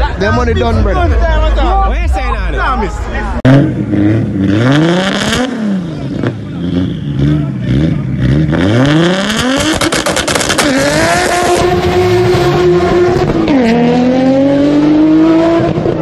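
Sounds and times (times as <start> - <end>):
car engines revving: 0.0 - 16.0
cars accelerating hard: 3.4 - 16.0.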